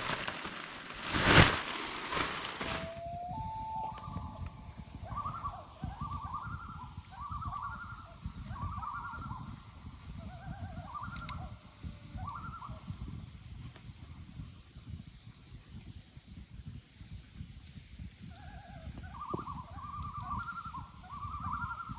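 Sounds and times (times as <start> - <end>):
loon tremolo call: 2.7 - 12.8.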